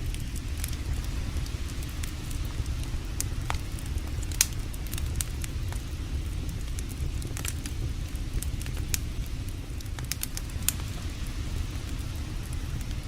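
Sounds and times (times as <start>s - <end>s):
campfire crackling and popping: 0.0s - 13.0s
steady low rumble: 0.0s - 13.0s.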